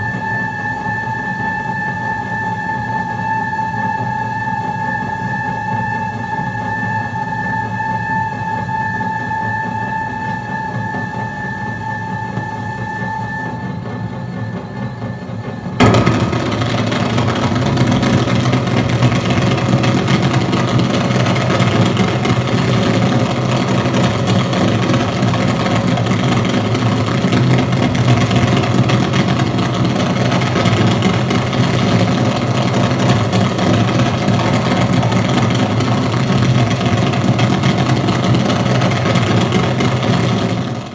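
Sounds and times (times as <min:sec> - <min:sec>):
wall of electronic noise: 0:00.0 - 0:40.9
strong low hum: 0:11.6 - 0:40.9.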